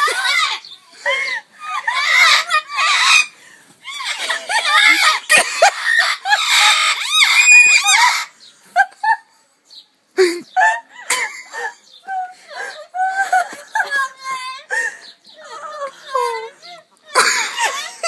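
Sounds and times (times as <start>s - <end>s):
parrots screeching and squawking: 0.0s - 8.4s.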